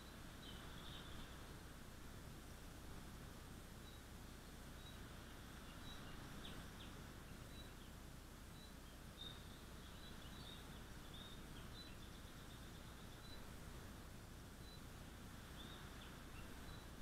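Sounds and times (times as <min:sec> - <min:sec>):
bird chirps: 0:00.0 - 0:01.6, 0:03.8 - 0:13.6, 0:14.6 - 0:17.0
low background hiss: 0:00.0 - 0:17.0.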